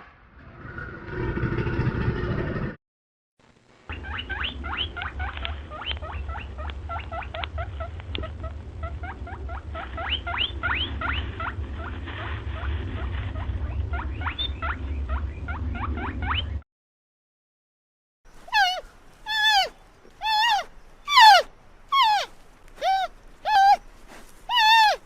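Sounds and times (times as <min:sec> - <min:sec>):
low rumble: 0:00.0 - 0:02.8, 0:05.5 - 0:16.6
rodent squeaking: 0:03.9 - 0:11.5, 0:18.4 - 0:25.0.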